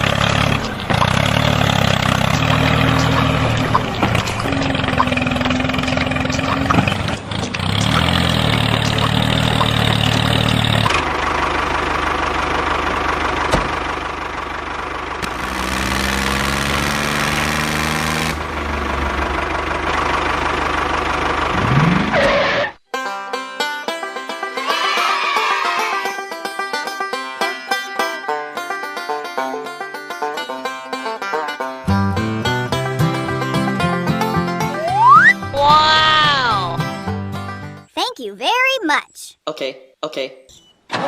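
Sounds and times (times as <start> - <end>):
engine revving up: 0.0 - 11.1, 15.2 - 19.6, 21.4 - 22.8
engine running: 0.0 - 22.8, 31.8 - 37.9.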